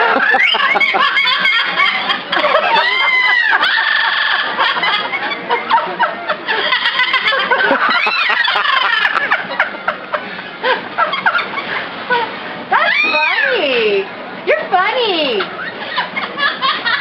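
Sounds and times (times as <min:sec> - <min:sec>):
birds laugh-like calls: 0:00.1 - 0:05.2.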